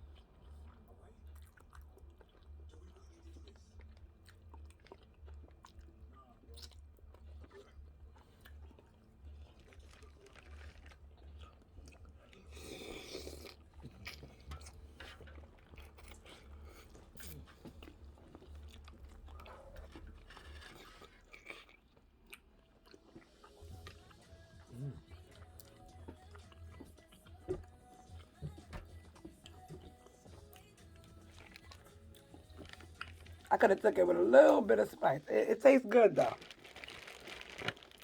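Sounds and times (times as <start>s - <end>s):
person chewing food: 0.0s - 33.9s, 35.9s - 38.0s
loud crunch: 36.2s - 38.0s.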